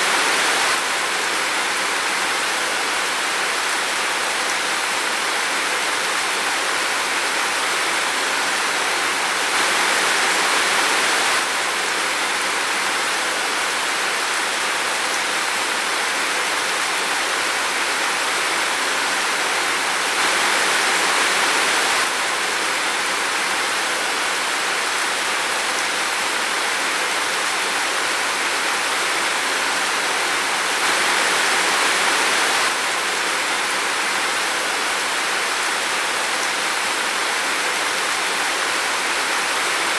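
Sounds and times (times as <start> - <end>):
heavy rain in forest: 0.0 - 39.9.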